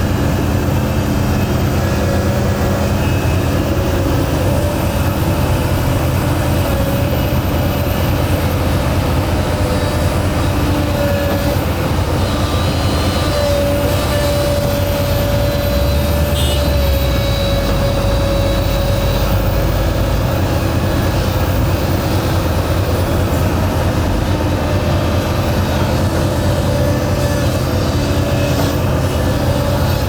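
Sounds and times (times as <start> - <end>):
diesel machinery engine rumble: 0.0 - 30.0
steady machine whine: 0.0 - 30.0.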